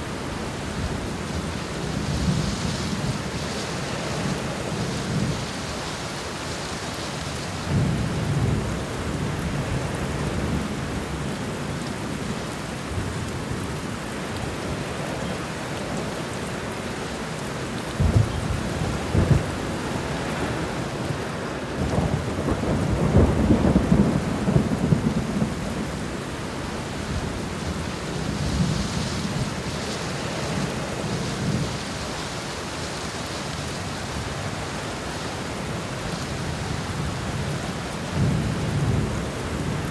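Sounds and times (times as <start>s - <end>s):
steady rain: 0.0s - 39.9s
thunder rumbling: 17.9s - 32.3s
sharp thunder cracks: 18.0s - 19.8s.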